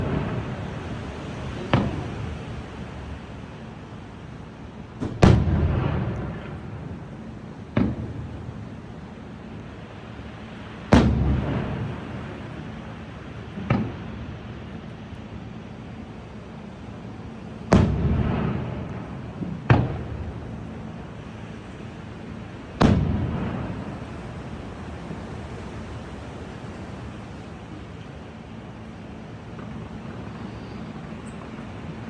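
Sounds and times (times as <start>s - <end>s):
fireworks bangs with echo: 0.0s - 3.2s, 5.0s - 8.8s, 10.9s - 12.6s, 13.6s - 14.2s, 17.7s - 21.2s, 22.8s - 25.6s.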